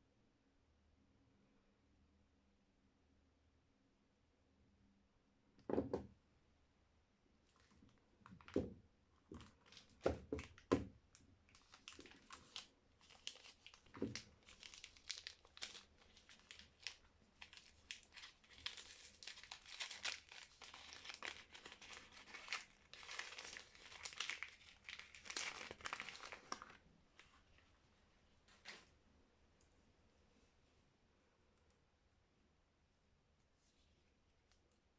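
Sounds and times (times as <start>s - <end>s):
wrapper crinkling and tearing: 9.3s - 27.7s.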